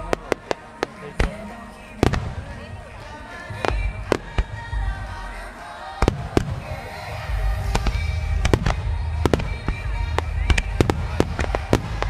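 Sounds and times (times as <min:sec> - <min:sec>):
fireworks bangs: 0:00.0 - 0:12.0
music: 0:00.0 - 0:12.0.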